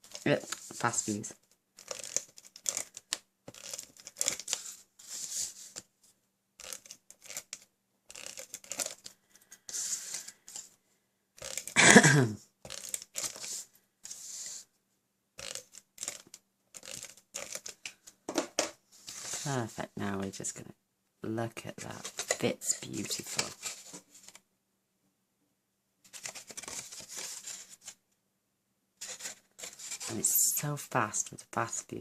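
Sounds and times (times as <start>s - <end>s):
paper rustling: 0.0s - 5.9s, 6.6s - 10.7s, 12.7s - 14.6s, 15.4s - 19.7s, 21.8s - 24.4s, 26.1s - 28.0s, 29.0s - 30.6s
adhesive applicator scraping: 6.6s - 9.0s, 15.4s - 17.7s.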